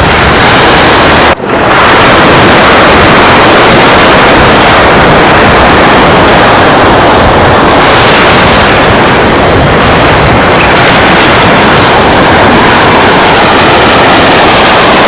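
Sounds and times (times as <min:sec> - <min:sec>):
surf on a beach: 0:00.0 - 0:15.0
wind: 0:00.0 - 0:15.0.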